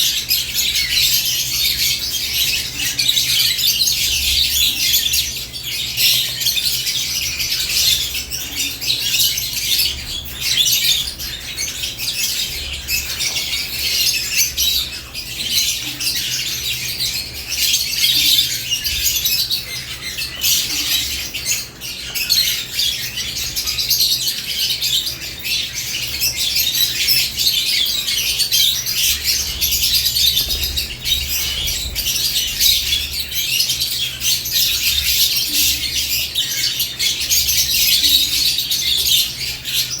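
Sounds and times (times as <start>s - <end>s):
lovebirds chirping and squawking: 0.0s - 40.0s.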